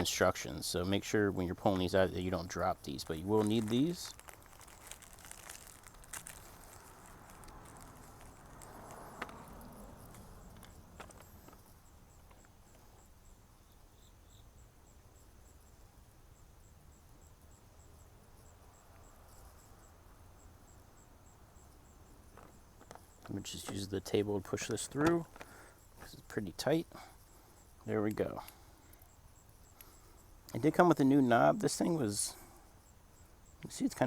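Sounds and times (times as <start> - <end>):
small parts clicking and rustling: 1.6 - 13.1, 22.2 - 26.2.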